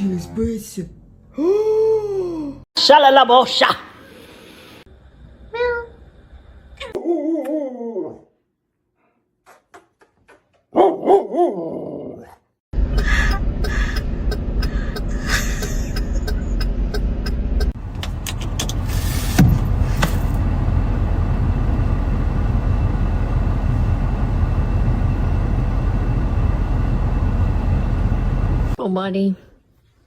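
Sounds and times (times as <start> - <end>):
car rumble: 12.8 - 28.8.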